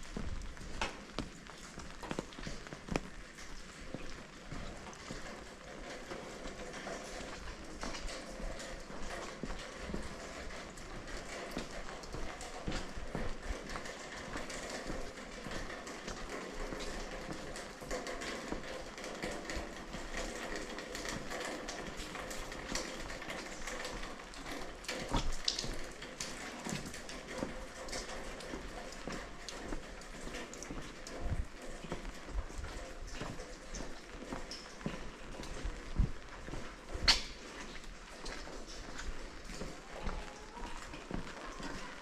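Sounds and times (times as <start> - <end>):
footsteps on wet stone: 0.0 - 42.0
rain on stone paving: 0.0 - 42.0
water dripping and tapping: 0.0 - 42.0.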